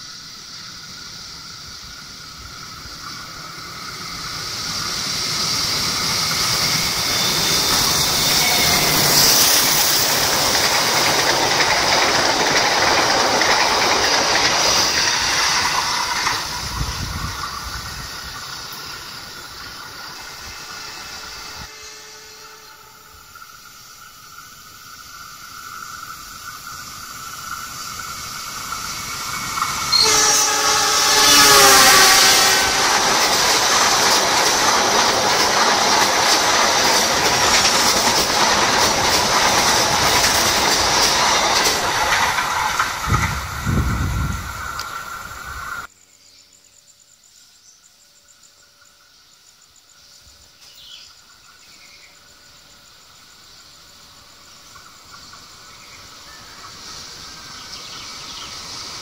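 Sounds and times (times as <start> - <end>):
train wheels rushing on rails: 0.0 - 45.9, 49.9 - 59.0
train horn: 7.2 - 9.5, 21.6 - 23.2, 29.9 - 33.4.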